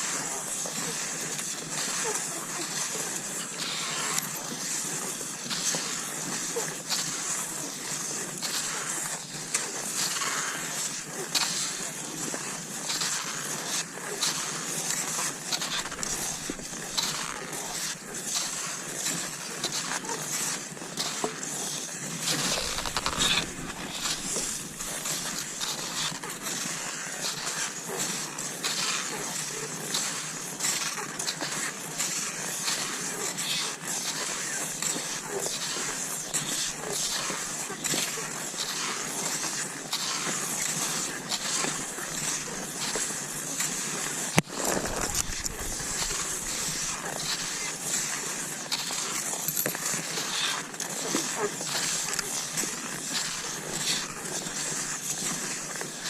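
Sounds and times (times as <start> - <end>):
skis sliding over snow: 0.0 - 56.0
ski poles planting: 12.9 - 27.0, 35.6 - 56.0
snow crunching: 14.6 - 19.2, 21.6 - 27.7, 38.7 - 56.0.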